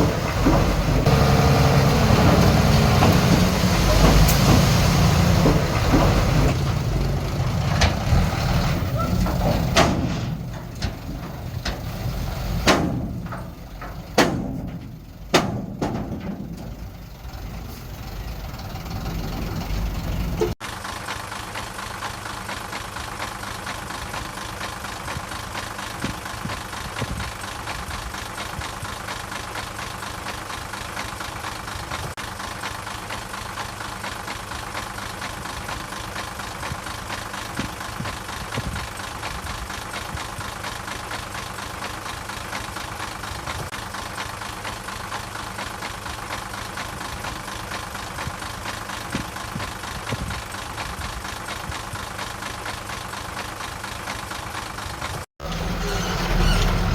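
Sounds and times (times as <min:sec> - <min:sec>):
machinery clanks and bangs: 0:00.0 - 0:20.6, 0:55.4 - 0:56.9
diesel engine idling: 0:00.0 - 0:56.9
diesel engine running: 0:00.0 - 0:56.9.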